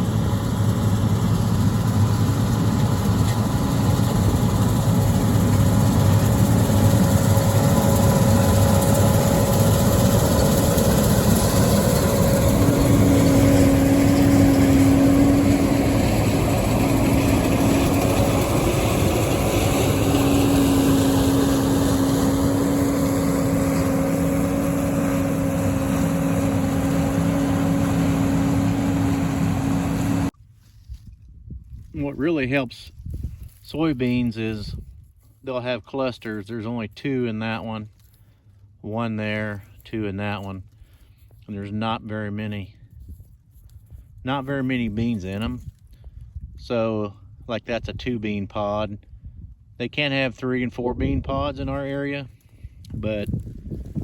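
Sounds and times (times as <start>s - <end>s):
combine harvester engine drone: 0.0s - 30.3s.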